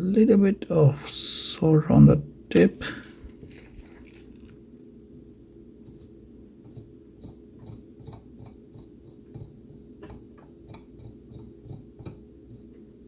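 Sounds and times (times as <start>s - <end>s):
steady low hum: 0.0s - 13.0s
soldering iron scraping and ticking: 6.8s - 12.8s.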